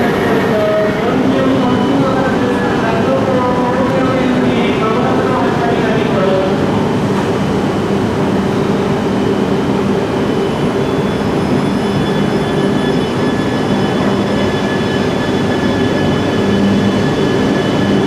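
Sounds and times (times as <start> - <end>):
train rushing past: 0.0 - 18.0.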